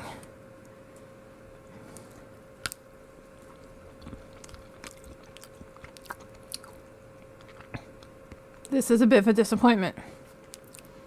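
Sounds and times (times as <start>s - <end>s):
person chewing: 1.8s - 8.7s, 10.2s - 11.0s
wet mouth clicks: 3.4s - 8.7s, 10.4s - 11.0s.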